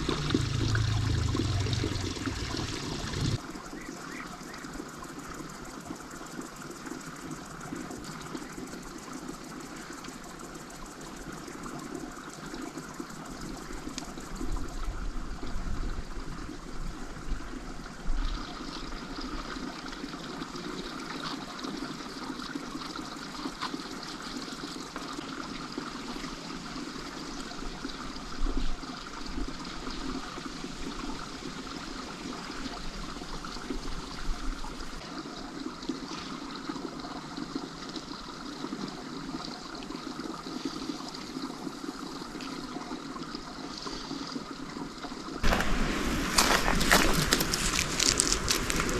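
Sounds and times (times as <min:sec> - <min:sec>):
low bumps: 0:00.0 - 0:03.4, 0:45.4 - 0:48.9
water running and trickling: 0:00.0 - 0:03.4, 0:17.9 - 0:48.9.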